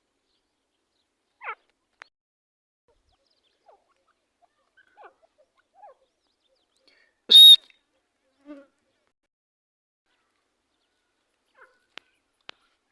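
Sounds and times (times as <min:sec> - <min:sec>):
partridges calling: 0:07.3 - 0:07.6.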